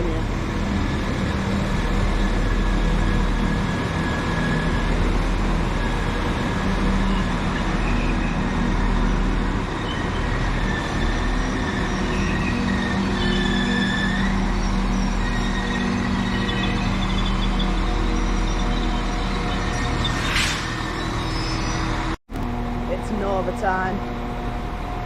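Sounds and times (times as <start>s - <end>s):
train engines humming: 0.0s - 25.0s
thin high squeal: 9.8s - 22.2s.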